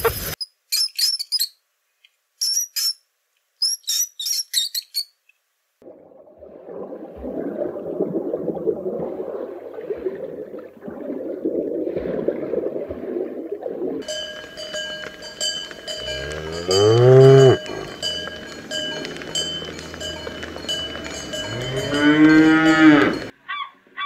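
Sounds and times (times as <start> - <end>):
aquarium water noise: 5.8 - 23.4
cowbells clinking: 14.0 - 23.4
cow mooing: 15.8 - 23.3.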